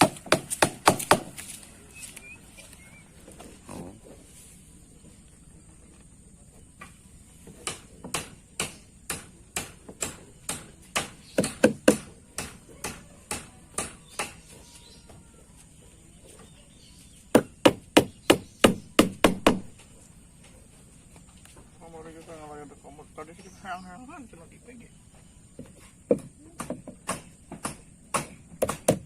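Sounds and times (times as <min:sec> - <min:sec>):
hammer driving nails: 0:00.0 - 0:01.4.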